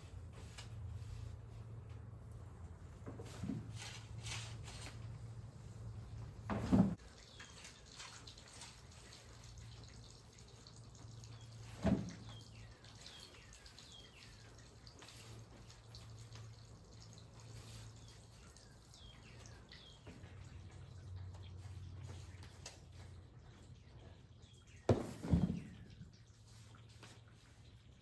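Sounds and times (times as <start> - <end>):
faint water dripping: 7.0 - 28.0.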